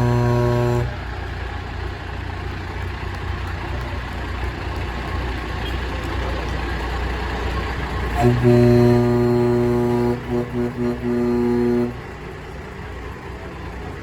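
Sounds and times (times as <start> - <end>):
truck horn blast: 0.0 - 1.4, 7.9 - 13.1
diesel trucks rumbling past: 0.0 - 14.0.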